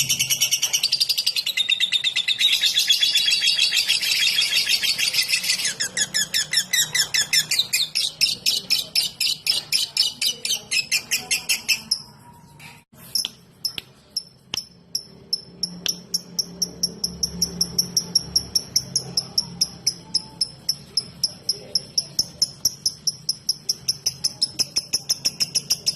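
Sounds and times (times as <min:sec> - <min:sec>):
bird ticking chirps: 0:13.2 - 0:25.9.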